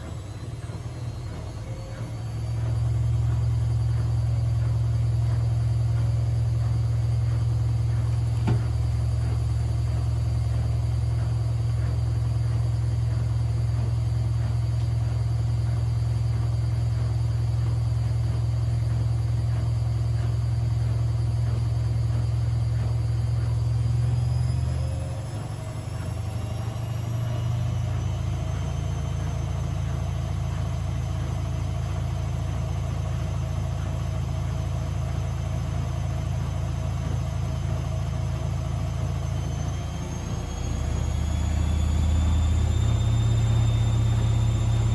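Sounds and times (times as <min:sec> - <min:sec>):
washing machine spinning: 0:00.0 - 0:44.9.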